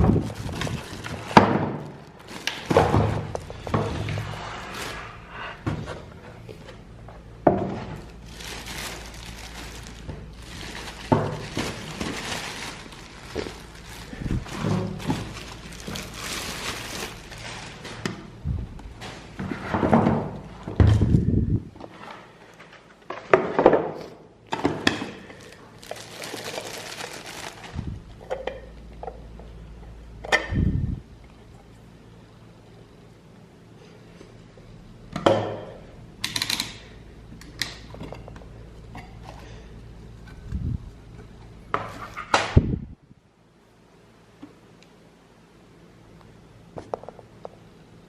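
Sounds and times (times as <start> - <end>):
packaging rustling and crinkling: 0.0 - 5.3, 7.8 - 19.4, 25.3 - 28.2.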